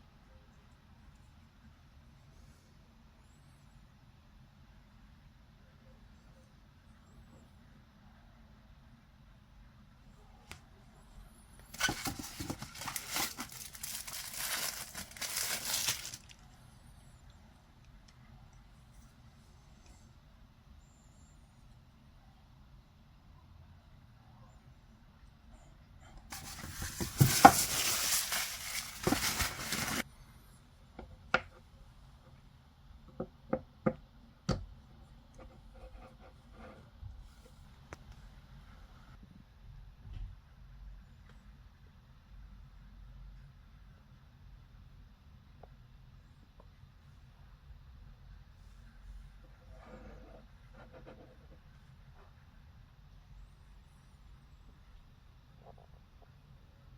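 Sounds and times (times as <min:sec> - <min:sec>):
packaging crinkling and tearing: 0:11.7 - 0:16.4, 0:26.3 - 0:30.0.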